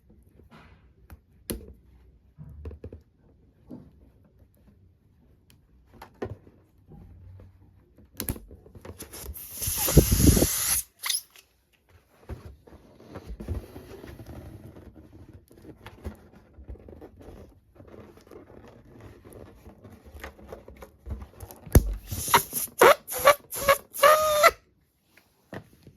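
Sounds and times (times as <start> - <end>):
rubbery balloon squeaks: 9.0 - 11.4, 21.8 - 24.6
balloons rustling: 21.8 - 24.6.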